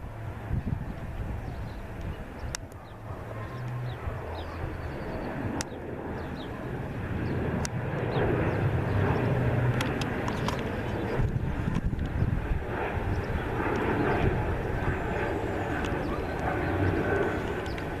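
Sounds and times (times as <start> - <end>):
airplane engines rumbling: 0.0 - 18.0
sharp clicks: 9.7 - 10.8.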